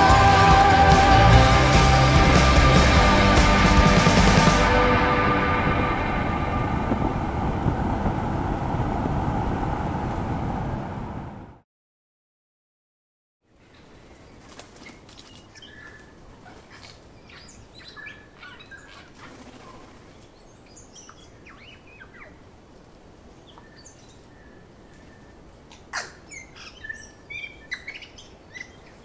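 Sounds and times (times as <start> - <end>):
birds chirping and calling: 13.7 - 22.4, 23.4 - 29.0.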